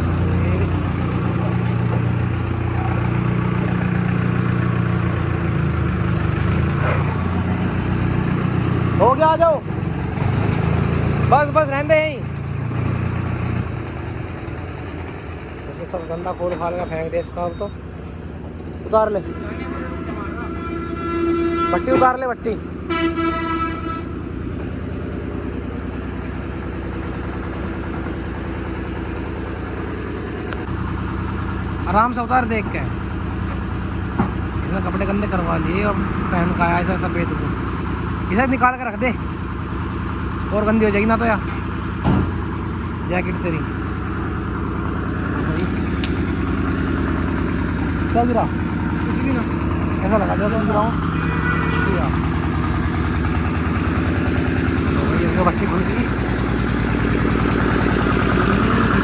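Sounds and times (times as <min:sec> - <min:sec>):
tractor diesel engine running: 0:00.0 - 0:59.0
horn tone: 0:19.1 - 0:24.2, 0:51.1 - 0:52.2.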